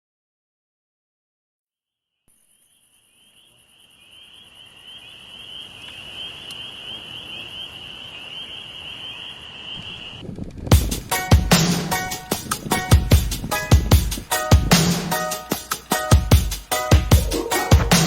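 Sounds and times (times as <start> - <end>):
insect trilling: 2.2 - 10.2, 17.2 - 18.0.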